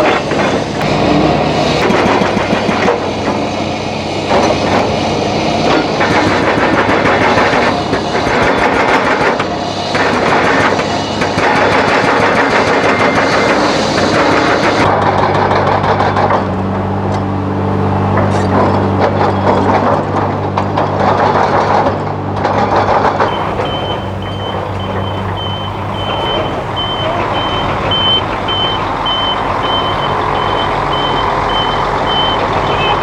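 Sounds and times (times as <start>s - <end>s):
diesel construction machine running: 0.0s - 33.0s
backup alarm beeping: 23.3s - 33.0s.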